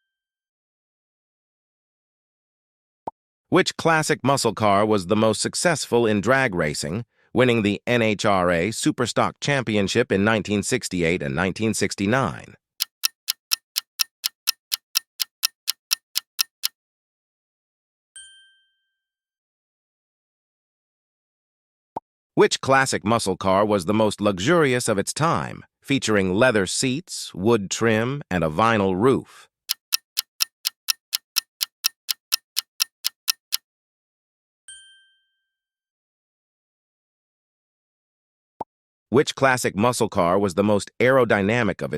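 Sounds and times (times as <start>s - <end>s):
clock ticking: 12.8s - 16.7s, 29.7s - 33.6s.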